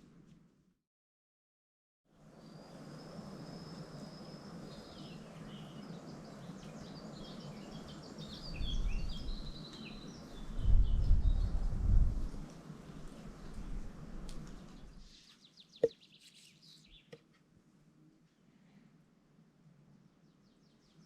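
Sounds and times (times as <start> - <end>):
birds singing: 2.4 - 11.6, 14.6 - 17.2.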